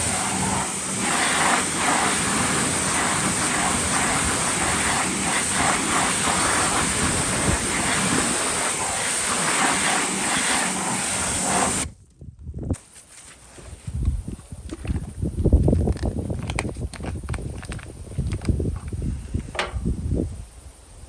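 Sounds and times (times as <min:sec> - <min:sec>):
hissing water spray: 0:00.0 - 0:11.9.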